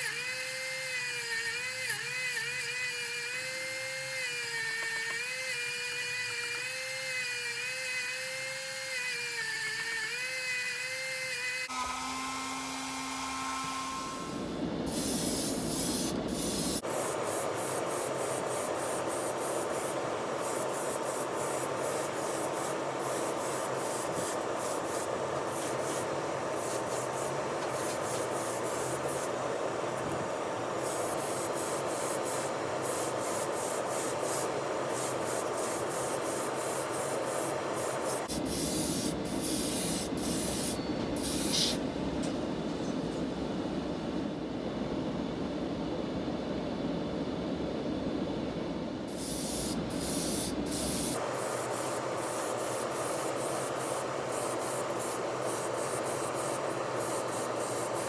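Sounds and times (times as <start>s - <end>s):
abrasive rubbing on toy car: 38.2s - 41.8s, 49.1s - 51.2s.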